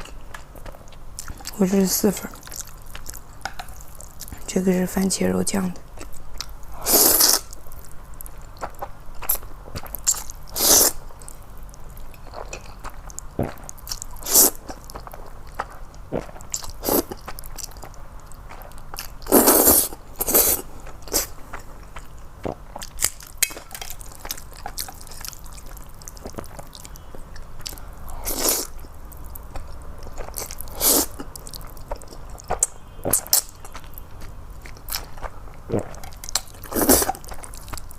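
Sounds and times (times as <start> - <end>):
chewing: 6.0 - 37.9
noodle slurping: 6.8 - 7.5.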